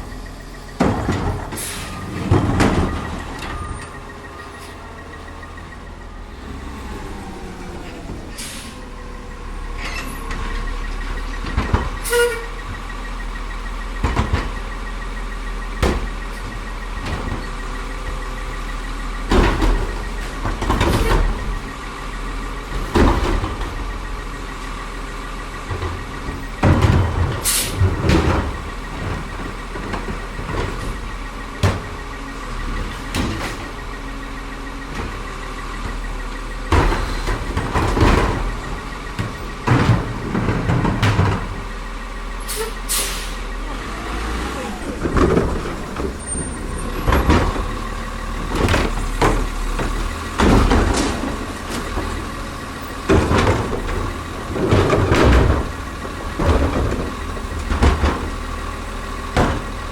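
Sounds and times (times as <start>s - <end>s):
loud metal clanks and bangs: 0.0s - 7.2s, 8.0s - 44.1s, 44.8s - 59.9s
garbage truck engine and hydraulics: 0.0s - 59.9s.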